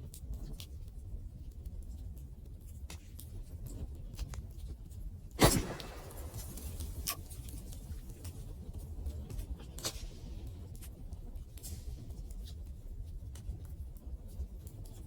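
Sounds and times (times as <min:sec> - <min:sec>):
wood fire crackling: 0:05.4 - 0:07.9.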